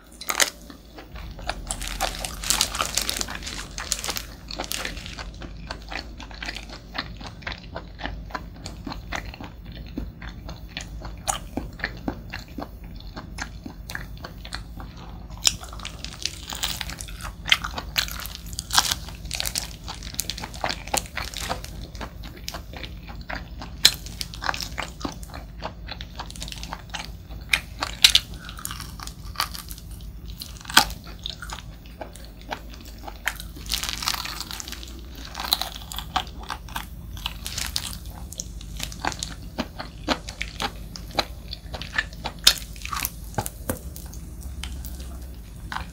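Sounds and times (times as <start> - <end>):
food crunching: 0.0 - 45.9
wet sticky chewing: 0.0 - 45.9.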